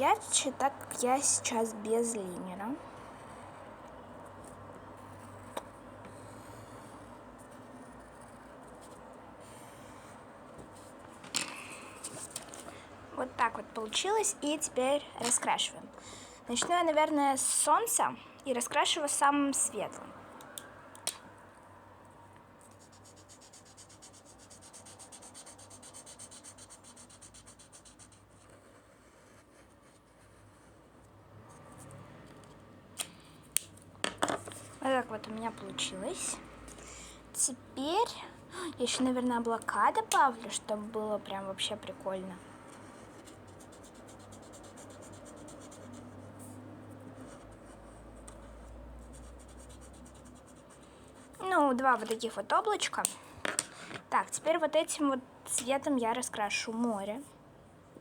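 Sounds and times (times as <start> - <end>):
marker scratching on paper: 4.3 - 11.1, 11.7 - 12.6, 22.6 - 32.6, 38.8 - 54.5.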